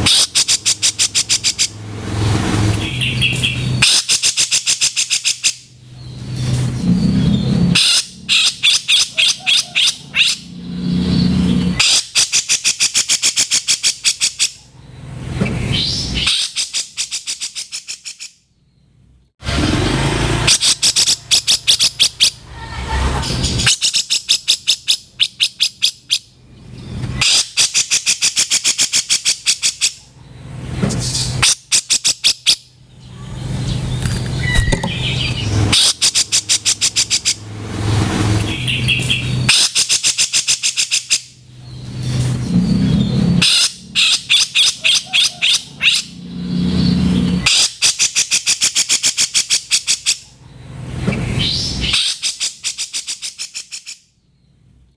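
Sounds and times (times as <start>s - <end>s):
bird chattering rattles: 0.0s - 1.8s, 2.8s - 5.6s, 11.8s - 14.6s, 16.2s - 18.3s, 20.5s - 22.4s, 23.5s - 26.3s, 27.2s - 30.0s, 34.2s - 37.4s, 38.7s - 41.3s, 47.4s - 50.2s, 51.8s - 54.0s.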